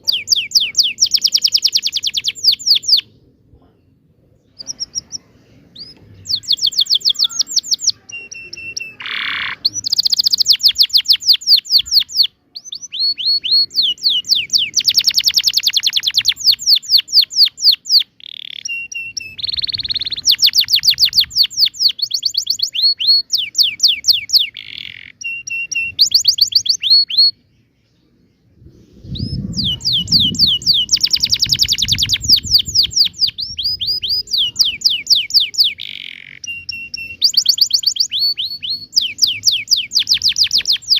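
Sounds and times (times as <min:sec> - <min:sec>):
canary singing trills: 0:00.0 - 0:28.2, 0:29.0 - 0:40.9
low rumble: 0:28.5 - 0:30.9.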